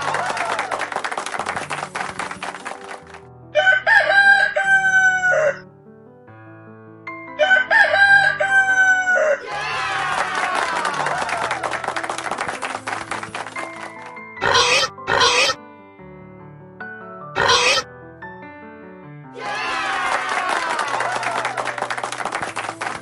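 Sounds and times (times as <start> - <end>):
cheering crowd sound effect: 0.0 - 1.0, 8.6 - 11.9, 14.4 - 15.6, 17.4 - 17.8, 19.3 - 21.7
rooster crowing: 3.6 - 5.6, 7.4 - 9.4.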